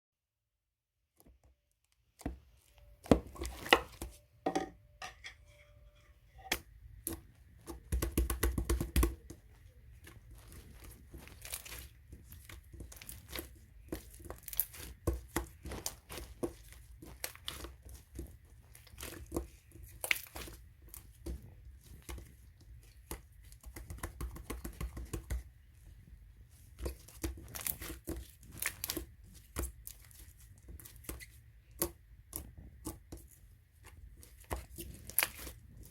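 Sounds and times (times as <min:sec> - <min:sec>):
crinkling and rustling: 0:09.2 - 0:31.5.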